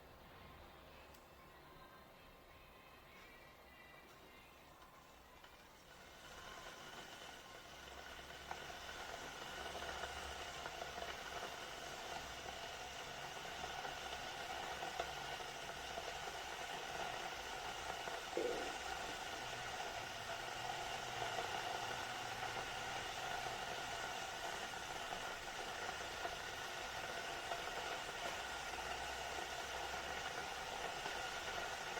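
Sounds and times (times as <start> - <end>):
kettle heating water hiss: 0.0 - 31.9
kettle faint ticks: 4.8 - 31.9.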